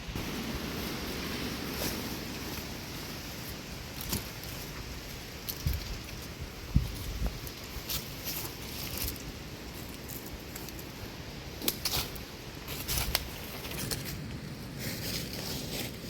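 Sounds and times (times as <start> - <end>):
crackles: 0.0 - 16.0
footsteps through leaf litter: 0.0 - 16.0.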